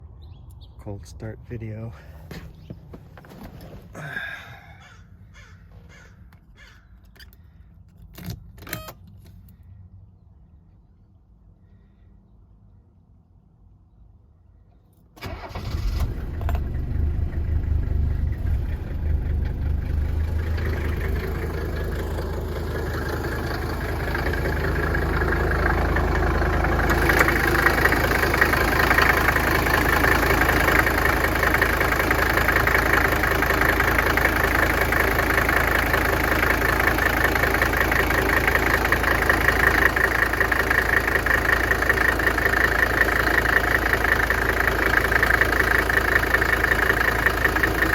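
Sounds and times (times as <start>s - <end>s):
diesel engine idling clatter: 15.2s - 47.9s
diesel engine starting: 15.2s - 47.9s.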